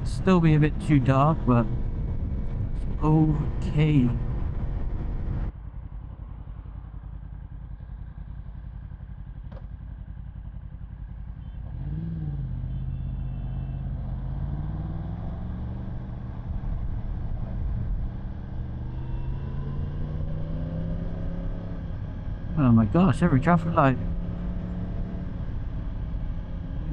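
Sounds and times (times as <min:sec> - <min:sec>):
motorcycle engine running: 0:00.0 - 0:26.9
road and wind noise: 0:00.0 - 0:26.9.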